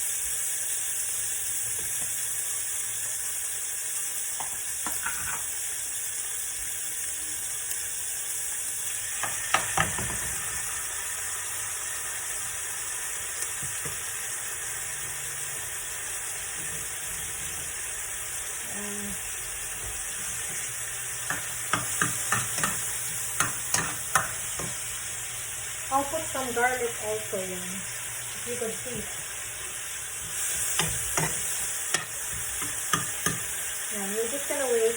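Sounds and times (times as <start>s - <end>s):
onion sizzling in oil: 0.0s - 34.9s
utensil clicking against pan: 21.2s - 24.9s, 30.3s - 33.6s.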